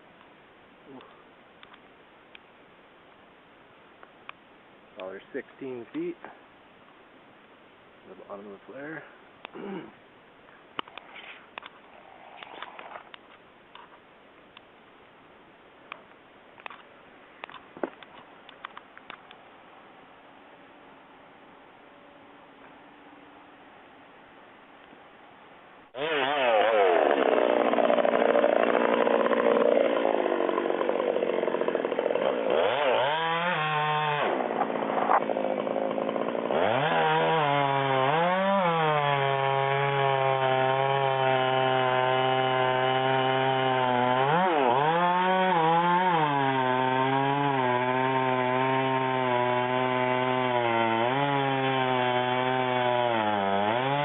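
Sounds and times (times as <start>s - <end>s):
chainsaw cutting wood: 12.3s - 13.2s, 25.9s - 54.0s.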